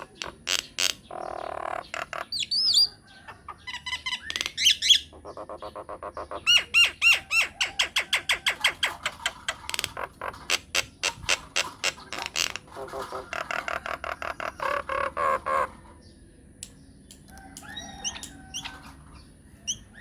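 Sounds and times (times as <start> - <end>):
myna bird song: 0.0 - 20.0.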